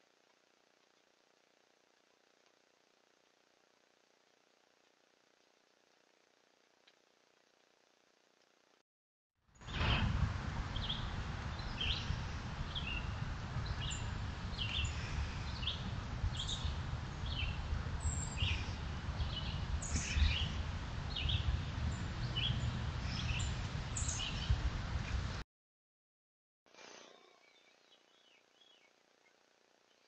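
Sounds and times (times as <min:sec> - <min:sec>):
low rumble: 0:09.6 - 0:25.4
small birds chirping: 0:10.7 - 0:24.7, 0:26.8 - 0:30.0.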